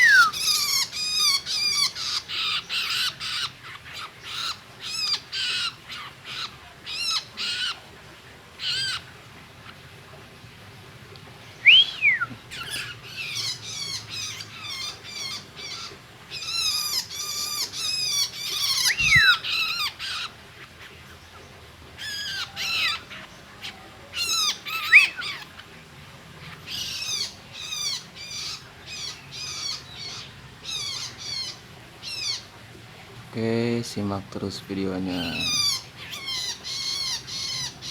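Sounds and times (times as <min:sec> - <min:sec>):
bird downward-slurred whistles: 0:00.0 - 0:00.4, 0:11.6 - 0:12.4, 0:18.9 - 0:19.4
bird harsh chattering calls: 0:00.0 - 0:07.8, 0:11.5 - 0:25.7, 0:26.4 - 0:32.6, 0:35.1 - 0:37.9.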